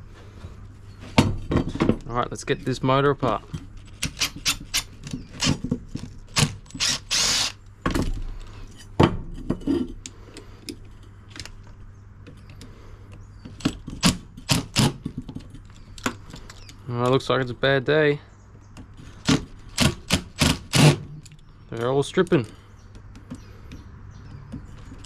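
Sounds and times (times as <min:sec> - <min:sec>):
power drill running in bursts: 0:06.4 - 0:07.6.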